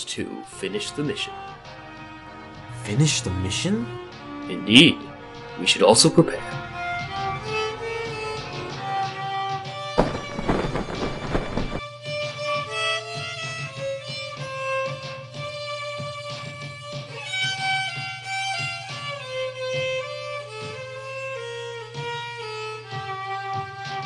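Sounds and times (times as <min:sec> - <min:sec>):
violin slow melody: 0:00.0 - 0:10.0, 0:12.0 - 0:24.0
light plucked notes: 0:02.6 - 0:05.0.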